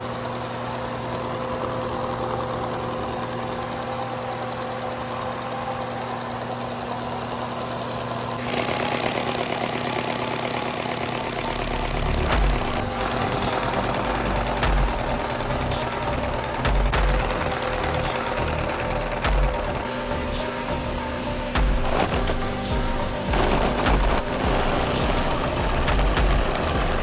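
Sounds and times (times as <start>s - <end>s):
pneumatic toy engine clattering: 0.0s - 27.0s
low thumps: 12.2s - 15.9s, 16.5s - 19.9s, 21.5s - 27.0s.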